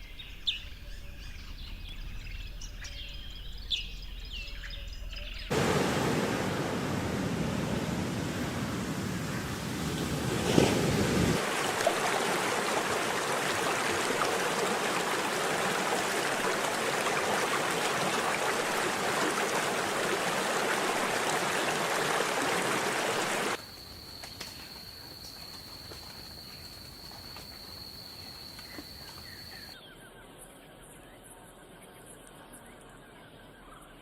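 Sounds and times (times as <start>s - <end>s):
rushing water noise: 5.5s - 23.6s.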